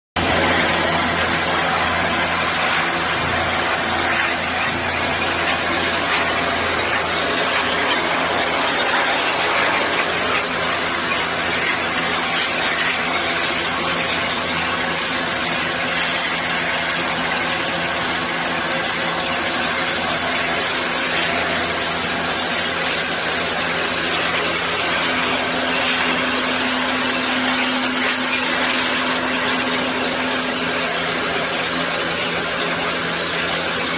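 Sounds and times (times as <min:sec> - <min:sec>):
steady hum: 0:00.2 - 0:16.4
motor-driven machine running: 0:00.2 - 0:33.9.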